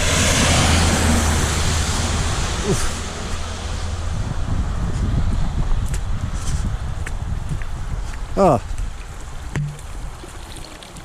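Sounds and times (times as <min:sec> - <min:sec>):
vehicle engine hum: 0:00.0 - 0:07.9.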